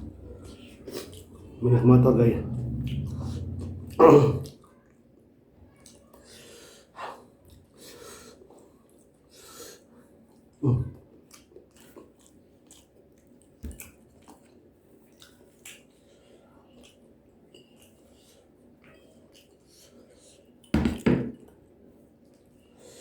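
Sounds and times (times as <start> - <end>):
person chewing: 11.3 - 14.5.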